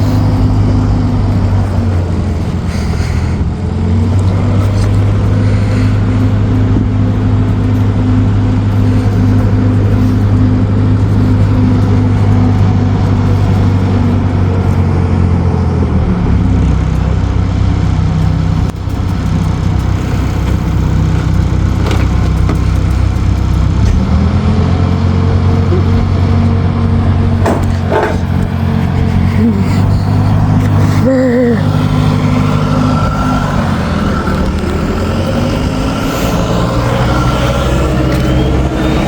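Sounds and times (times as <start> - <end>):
vehicle engine running: 0.0 - 39.0
short clatters: 17.8 - 39.0.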